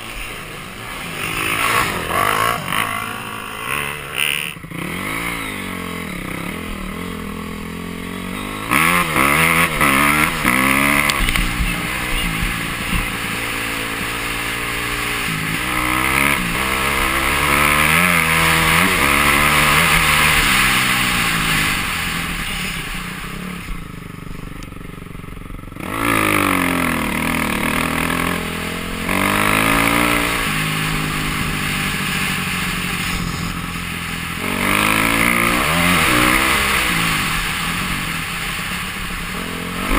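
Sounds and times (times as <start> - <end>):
dirt bike engine revving: 0.0 - 39.9
steady rushing noise: 0.0 - 39.9.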